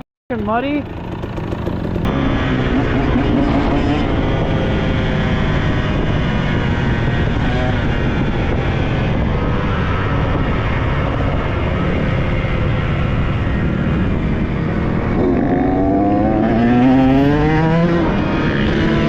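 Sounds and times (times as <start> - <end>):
dirt bike engine running: 0.3 - 3.3.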